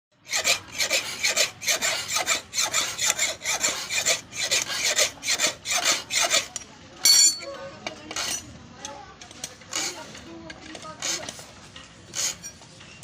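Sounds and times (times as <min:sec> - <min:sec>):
file rasping on metal blade: 0:00.2 - 0:06.7, 0:07.9 - 0:08.5, 0:09.7 - 0:11.5, 0:12.1 - 0:12.6.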